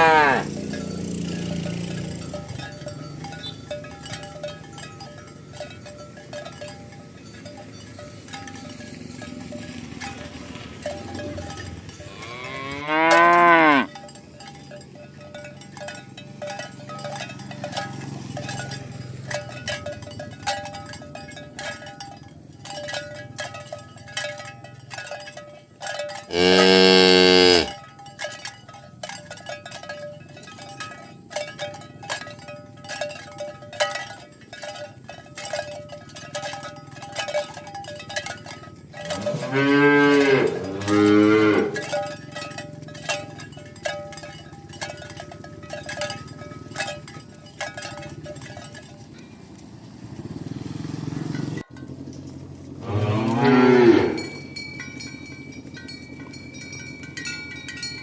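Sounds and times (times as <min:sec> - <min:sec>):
cattle mooing: 0:00.0 - 0:01.4, 0:12.0 - 0:13.9, 0:26.3 - 0:27.8, 0:39.1 - 0:42.0, 0:52.8 - 0:54.4
irregular clinking: 0:00.0 - 0:58.0.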